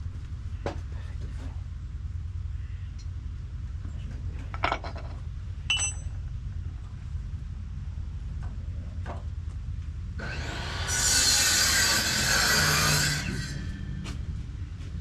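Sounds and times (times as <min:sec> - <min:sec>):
saw cutting lumber: 0:10.2 - 0:14.2.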